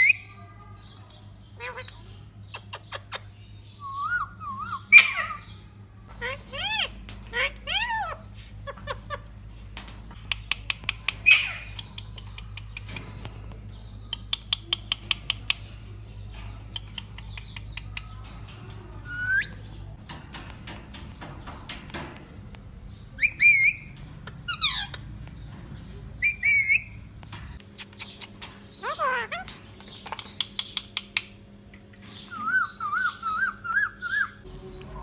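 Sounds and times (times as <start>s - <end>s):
parakeet squawking: 1.5s - 5.6s, 6.2s - 9.4s, 11.2s - 11.8s, 27.8s - 29.5s
parakeet chirping: 22.8s - 25.4s, 26.1s - 27.1s, 27.8s - 29.5s.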